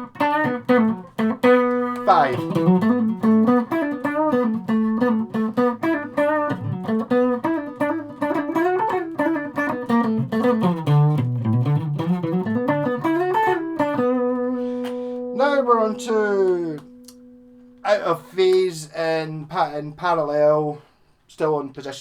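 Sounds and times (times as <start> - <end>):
electric guitar notes and chords: 0.0 - 18.0.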